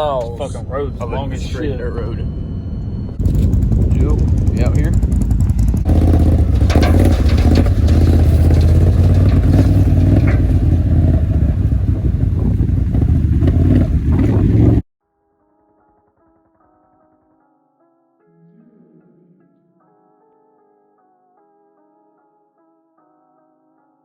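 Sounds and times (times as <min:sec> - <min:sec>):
vehicle engine running: 0:00.0 - 0:14.8
loose rattles and clatter: 0:03.2 - 0:11.8.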